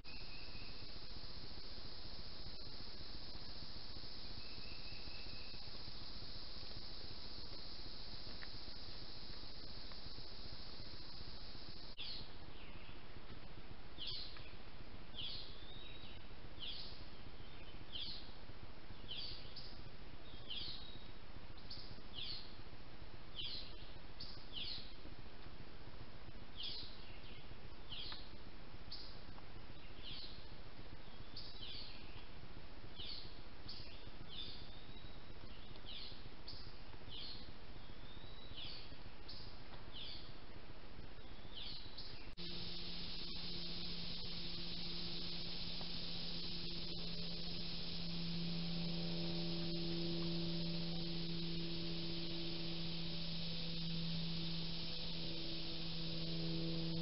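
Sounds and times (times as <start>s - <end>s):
steady hiss: 0.0s - 57.0s
bird calling high falling notes: 42.4s - 57.0s.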